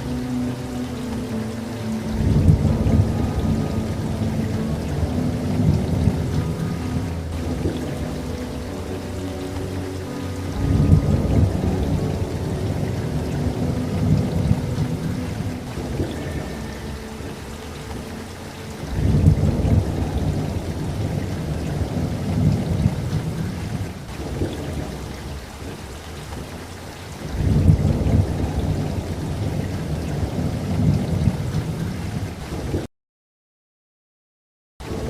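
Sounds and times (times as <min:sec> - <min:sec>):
steady rain: 0:00.0 - 0:32.9, 0:34.8 - 0:35.0
thunder rolling: 0:10.6 - 0:16.5, 0:27.3 - 0:32.8.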